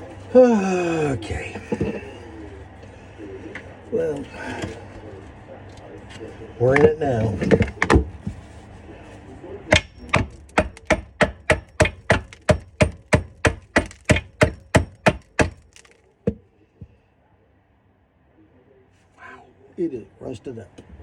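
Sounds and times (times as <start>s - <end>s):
hammer striking metal: 9.7s - 15.7s.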